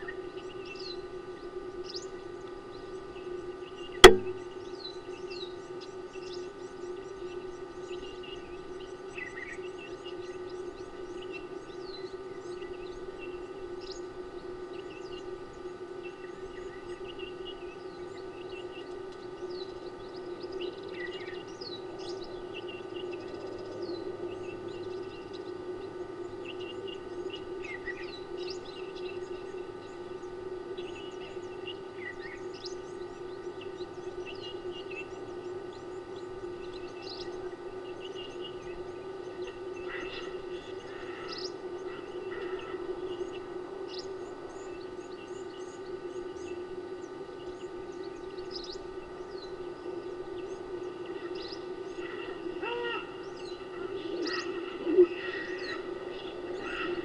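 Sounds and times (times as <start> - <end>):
steady low hum: 0.0 - 57.0
birds chirping and calling: 26.2 - 57.0.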